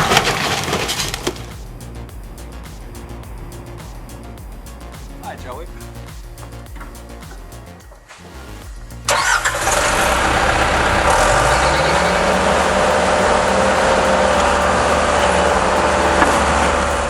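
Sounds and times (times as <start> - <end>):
excavator diesel engine whining: 9.1 - 17.0.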